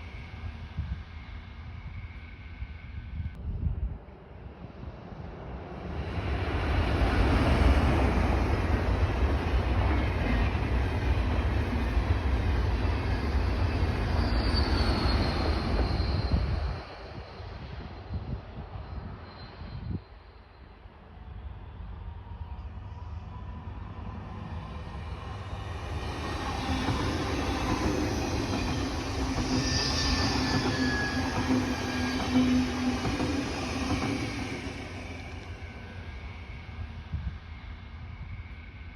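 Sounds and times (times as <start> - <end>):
train wheels rushing on rail: 4.5 - 20.0, 21.1 - 38.9
faint high squeal: 12.8 - 23.7, 24.5 - 38.9.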